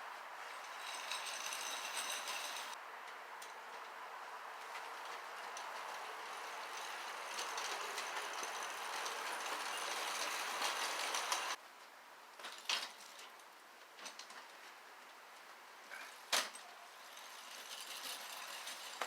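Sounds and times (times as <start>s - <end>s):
steady mechanical rattling: 5.4s - 11.6s.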